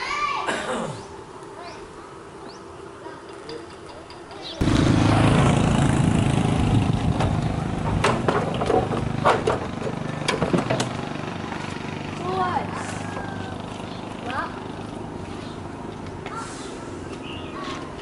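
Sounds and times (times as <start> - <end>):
engine running: 4.6 - 18.0.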